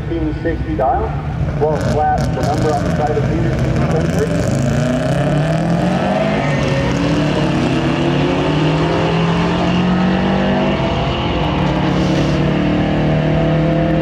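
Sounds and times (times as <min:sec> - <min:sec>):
car engine accelerating hard: 0:01.5 - 0:14.0.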